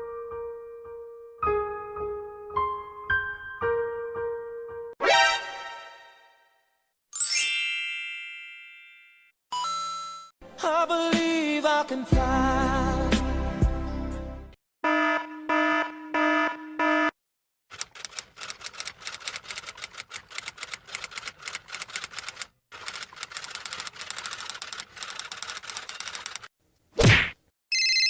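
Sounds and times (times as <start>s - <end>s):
rapid typing key clicks: 17.7s - 26.5s.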